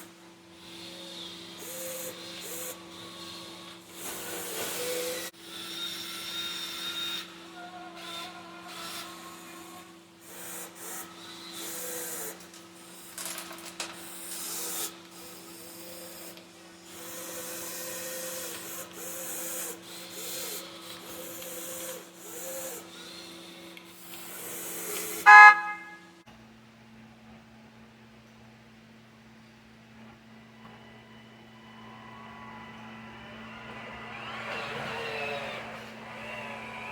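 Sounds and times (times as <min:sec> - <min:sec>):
horn toot: 0:25.2 - 0:26.1
motor hum: 0:30.0 - 0:36.9.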